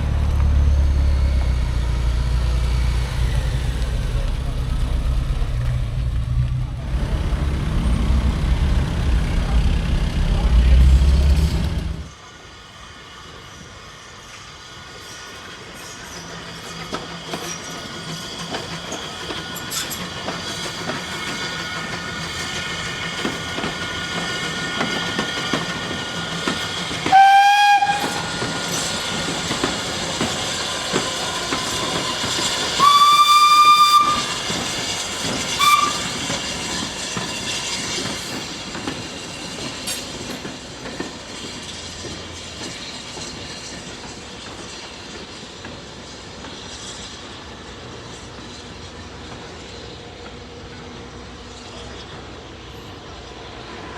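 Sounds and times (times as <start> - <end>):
steam locomotive running: 0.0 - 53.9
steam whistle blasts: 27.0 - 28.5, 32.6 - 36.5.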